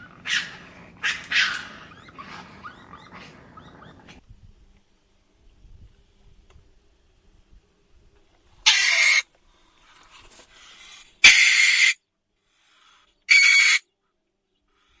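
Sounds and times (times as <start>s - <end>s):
owl screeching: 0.0s - 4.1s, 8.6s - 9.3s, 11.2s - 12.0s, 13.3s - 13.8s.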